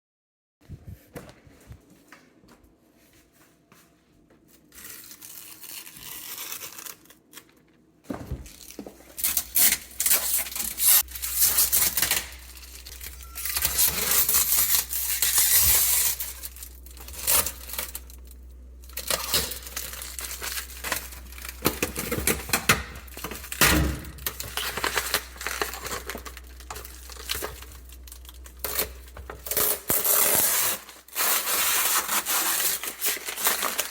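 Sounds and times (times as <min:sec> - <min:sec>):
packaging tearing and crumpling: 0:04.7 - 0:07.6, 0:08.5 - 0:33.9
low steady hum: 0:07.0 - 0:31.5.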